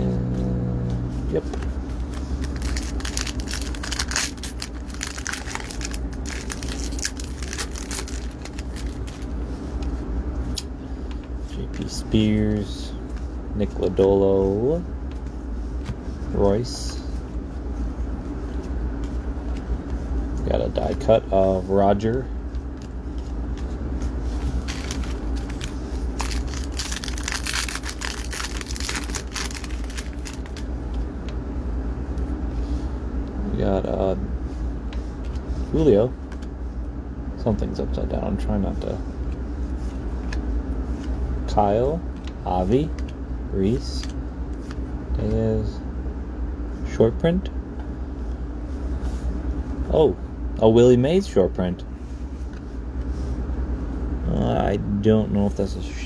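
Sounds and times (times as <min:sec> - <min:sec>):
low hum: 0:00.0 - 0:56.0
foil wrapper tearing and crinkling: 0:02.4 - 0:09.3, 0:24.5 - 0:30.6.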